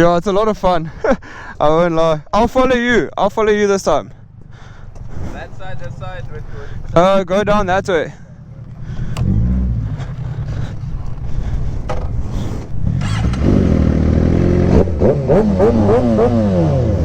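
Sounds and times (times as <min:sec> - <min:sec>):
motorcycle engine revving: 0:08.2 - 0:17.0.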